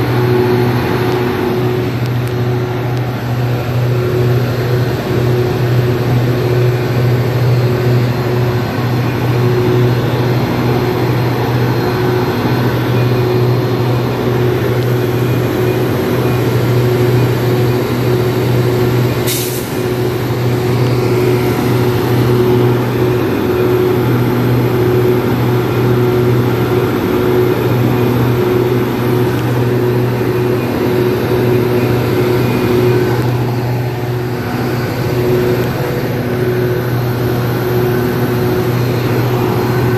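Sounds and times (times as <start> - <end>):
diesel locomotive running: 0.0 - 39.9
sharp hiss of air: 19.2 - 19.8.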